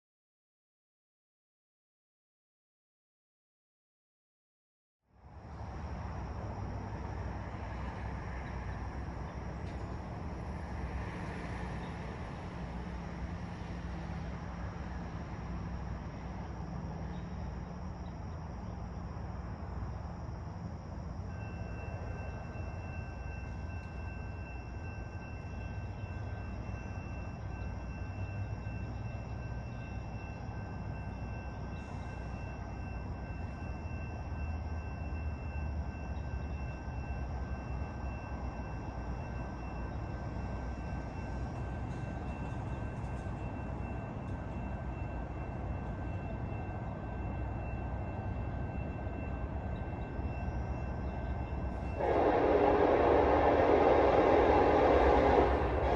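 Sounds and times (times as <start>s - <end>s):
train rumble: 5.2s - 55.9s.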